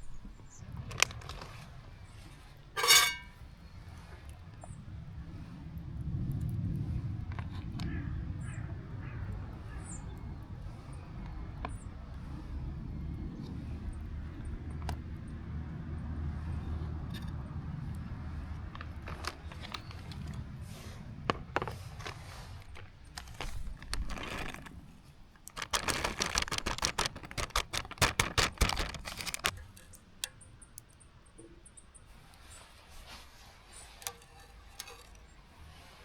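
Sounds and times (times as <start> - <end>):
small hard objects clattering: 2.8 - 3.4, 18.4 - 30.1, 33.7 - 35.9.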